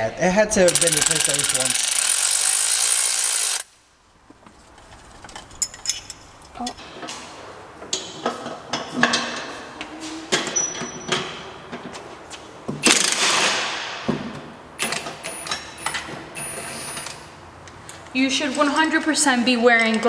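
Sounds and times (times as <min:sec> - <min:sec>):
tool clatter: 0:04.3 - 0:07.0
metal hand tools clinking: 0:05.2 - 0:06.8.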